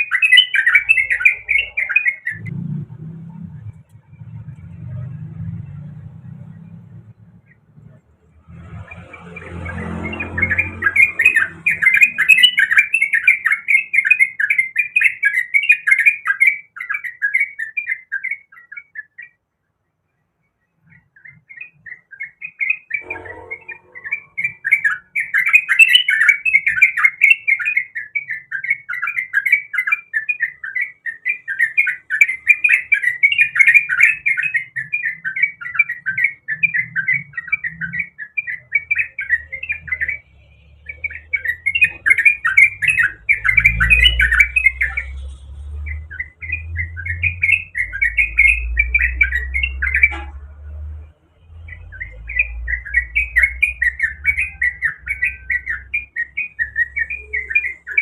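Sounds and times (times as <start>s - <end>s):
bulbul singing chattering notes: 0.0s - 2.5s, 8.6s - 16.3s, 20.9s - 50.2s, 51.6s - 58.0s.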